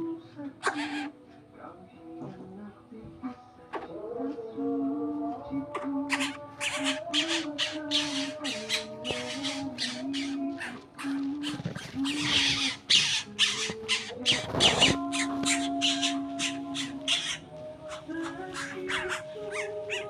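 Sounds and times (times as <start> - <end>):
background music: 0.0 - 20.0
bird squawking harshly: 6.1 - 20.0.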